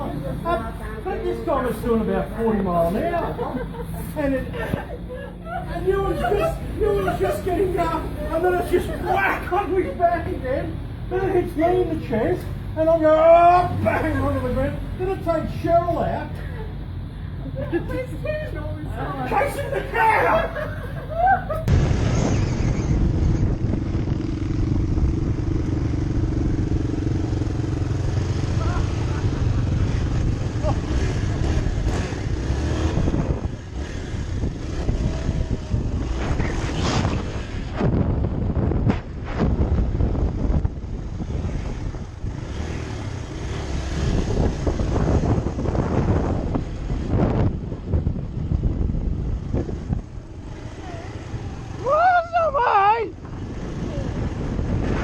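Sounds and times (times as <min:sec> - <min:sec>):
dirt bike engine running: 0:21.7 - 0:51.8.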